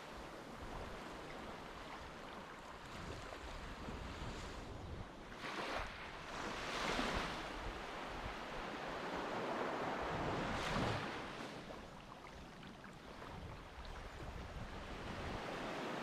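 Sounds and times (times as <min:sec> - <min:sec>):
sea water washing and surging: 0:00.1 - 0:16.0
wind on microphone: 0:02.8 - 0:08.7, 0:09.6 - 0:16.0.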